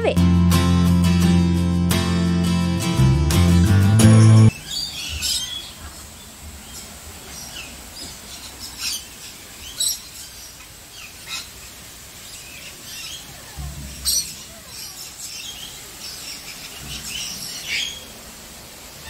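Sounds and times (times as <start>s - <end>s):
birds calling high-pitched: 4.2s - 18.2s
steady background hiss: 4.5s - 19.0s.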